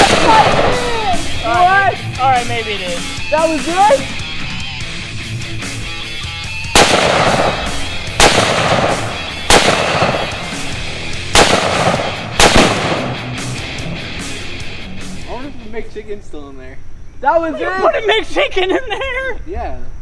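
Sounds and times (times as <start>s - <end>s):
gunshots: 0.0s - 1.4s, 6.6s - 13.6s
background music: 0.0s - 16.1s.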